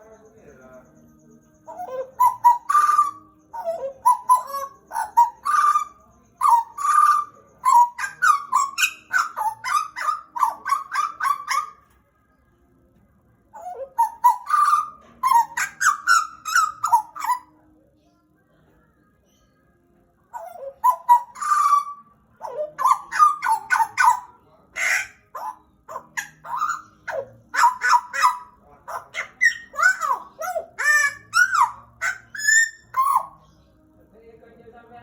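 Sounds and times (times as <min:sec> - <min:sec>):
bird singing fluting whistles: 0:29.4 - 0:33.4.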